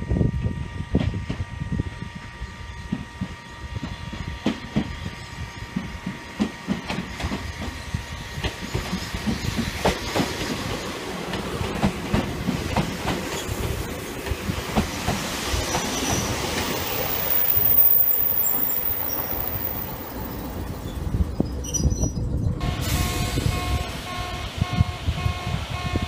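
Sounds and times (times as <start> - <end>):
electric train passing: 0.0 - 26.0
wheels clacking over rail joints: 5.7 - 21.2.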